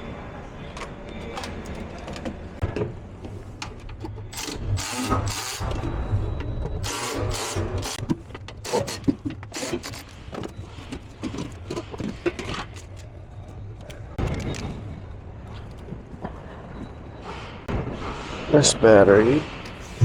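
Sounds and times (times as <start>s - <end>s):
knocks and clanks of hand tools: 6.6s - 13.1s.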